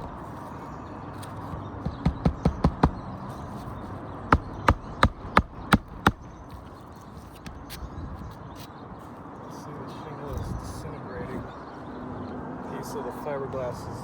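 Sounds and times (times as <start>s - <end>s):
hammer driving nails into shingles: 1.8s - 3.0s, 4.3s - 6.2s.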